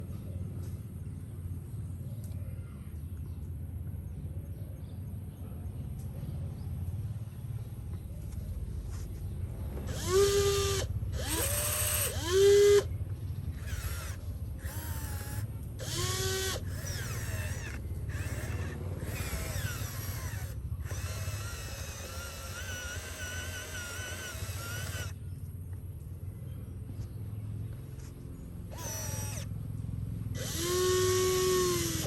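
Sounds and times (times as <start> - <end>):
small electric motor whining: 9.8 - 25.2, 28.0 - 29.6, 30.3 - 32.0.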